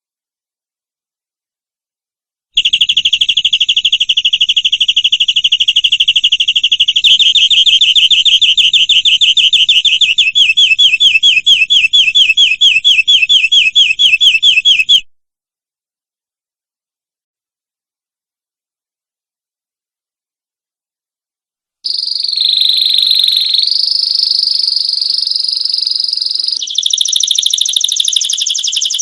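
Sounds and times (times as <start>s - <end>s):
canary singing trills: 2.6s - 15.0s, 21.9s - 29.0s.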